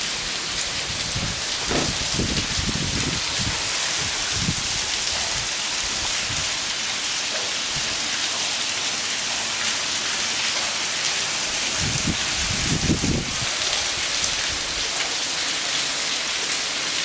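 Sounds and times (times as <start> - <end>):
hail and rain falling: 0.0 - 17.0.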